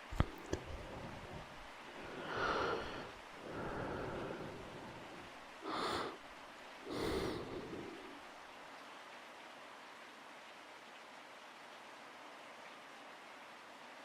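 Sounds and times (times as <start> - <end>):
soft breathing: 0.0 - 8.3
faint steady rain: 0.0 - 14.0.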